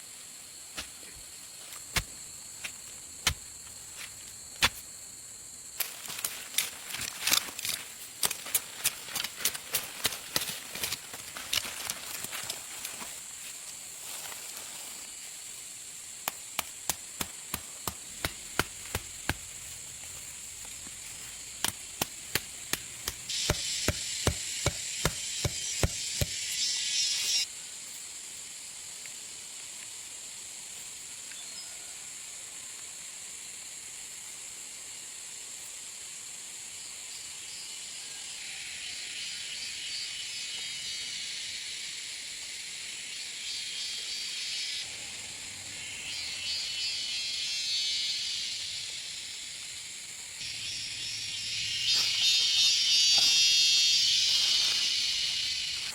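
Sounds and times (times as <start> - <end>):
high insect drone: 0.0 - 55.9
insect buzzing chorus: 0.0 - 55.9
sharp knocks: 21.6 - 26.4.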